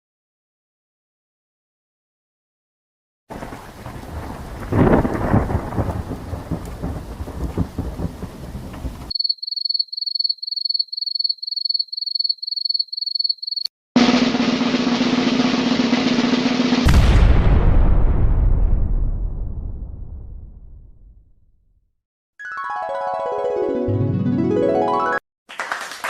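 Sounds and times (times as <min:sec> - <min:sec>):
rumbling thunder-like noise: 0:03.3 - 0:09.1, 0:16.8 - 0:21.2
loud crack: 0:14.0 - 0:21.0.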